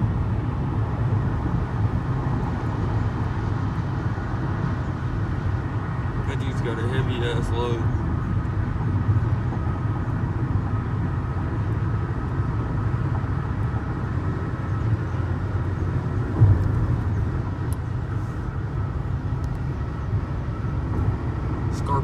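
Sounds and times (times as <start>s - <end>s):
car road and engine noise: 0.0s - 22.0s
thump: 16.3s - 17.4s.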